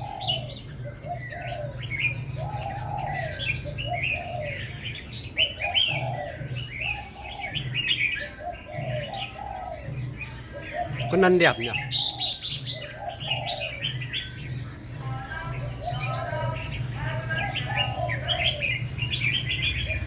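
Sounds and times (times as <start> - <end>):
lower repeated bird call: 0.0 - 14.4
birds chirping: 0.0 - 20.0.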